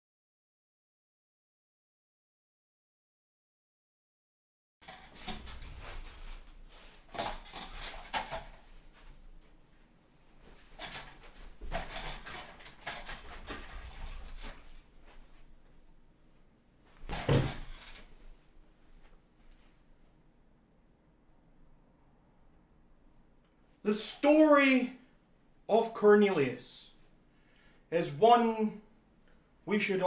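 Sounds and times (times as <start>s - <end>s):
clattering and rustling handling: 4.8s - 16.0s, 16.9s - 19.8s.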